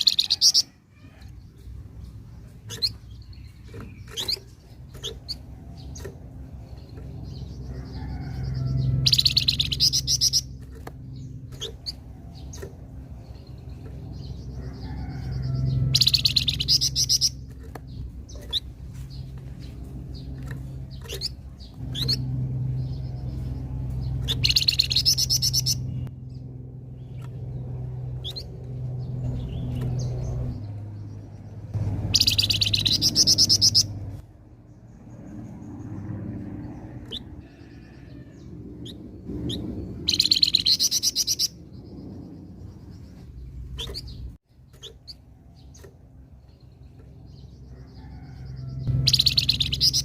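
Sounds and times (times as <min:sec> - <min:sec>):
songbird high trilling: 0:08.4 - 0:12.7, 0:14.8 - 0:18.8, 0:24.1 - 0:26.0, 0:32.1 - 0:34.0, 0:39.5 - 0:41.7, 0:49.0 - 0:50.0.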